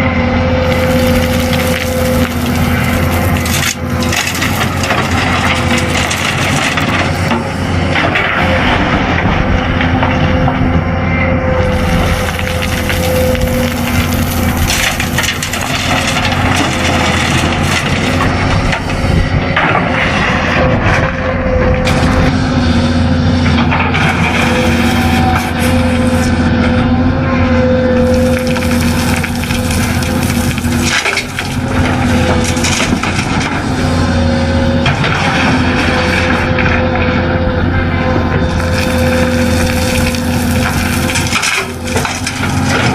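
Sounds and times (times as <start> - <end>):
scraping and crunching: 0.6 - 9.5, 11.6 - 22.7, 27.9 - 37.2, 38.4 - 42.9.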